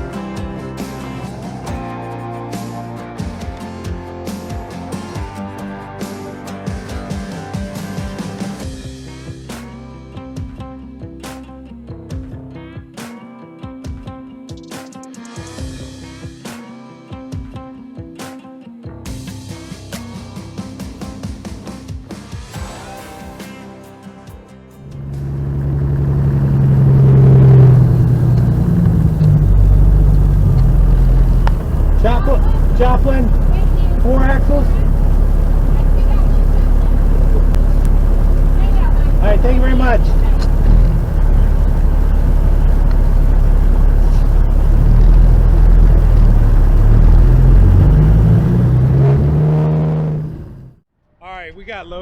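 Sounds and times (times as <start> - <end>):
road rumble: 0.0 - 8.7, 24.8 - 50.8
truck diesel engine under load: 24.8 - 50.8.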